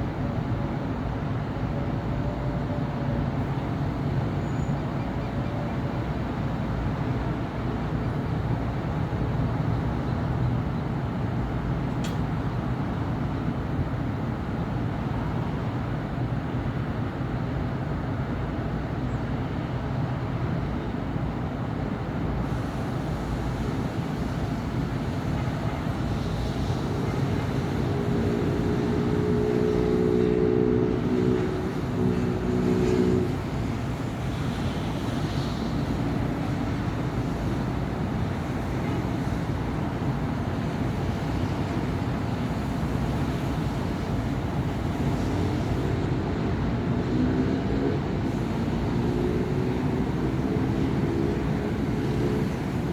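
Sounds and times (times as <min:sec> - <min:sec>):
traffic of passing cars and buses: 0:00.0 - 0:52.9
vehicle engine hum: 0:22.5 - 0:37.4, 0:42.6 - 0:52.9.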